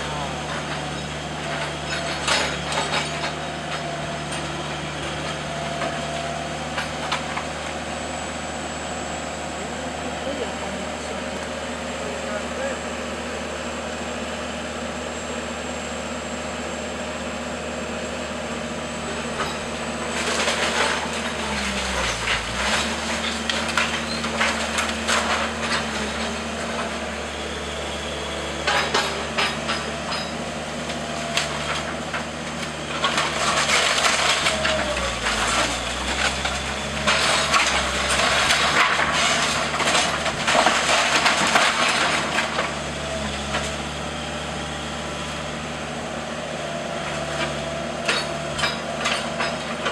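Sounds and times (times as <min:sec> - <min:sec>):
diesel engine of demolition machinery: 0:00.0 - 0:49.9
wooden walls cracking and crunching: 0:20.0 - 0:27.0, 0:30.9 - 0:43.8.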